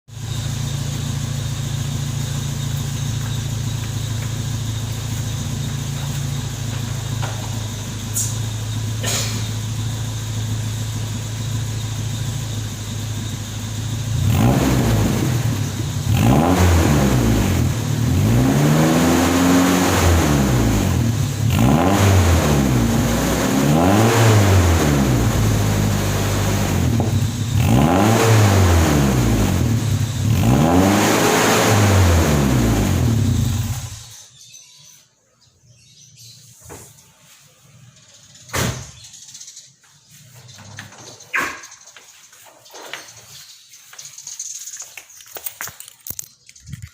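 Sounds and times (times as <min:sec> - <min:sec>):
car engine idling and revving: 0:00.1 - 0:34.3.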